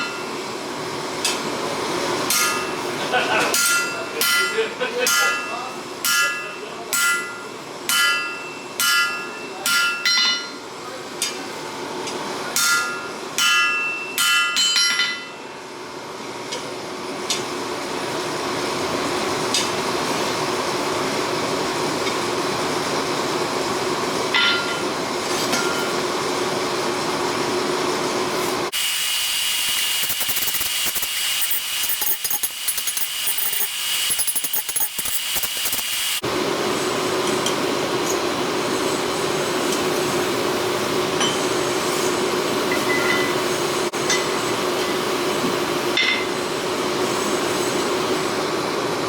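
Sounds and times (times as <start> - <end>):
hammer ringing on steel anvil: 3.5 - 10.6, 12.6 - 15.4
power tool hissing: 28.7 - 36.2.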